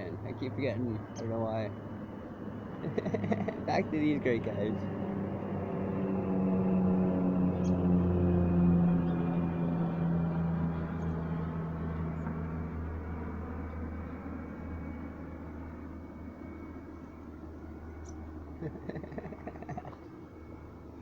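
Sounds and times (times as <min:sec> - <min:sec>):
passing vehicle engine drone: 0:00.0 - 0:21.0.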